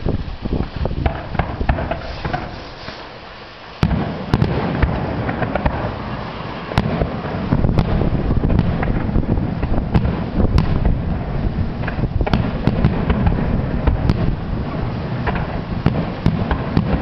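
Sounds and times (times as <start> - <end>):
fireworks bangs and crackling: 0.0 - 17.0
low rumble: 4.8 - 17.0.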